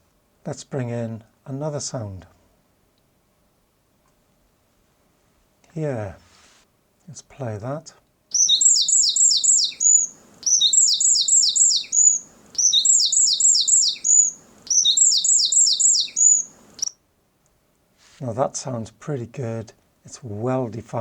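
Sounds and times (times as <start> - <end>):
faint low background noise: 0.0 - 21.0
songbird singing: 8.3 - 17.0.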